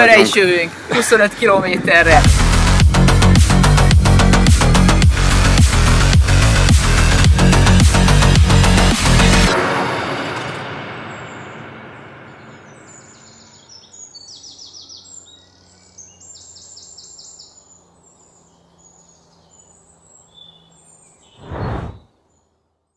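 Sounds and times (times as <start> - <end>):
birds trilling: 0.0 - 2.7, 12.3 - 22.4.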